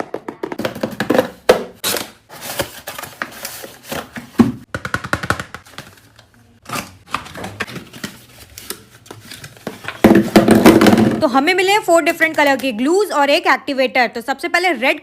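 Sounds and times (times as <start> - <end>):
packaging rustling and tearing: 1.8 - 4.3, 5.6 - 10.0.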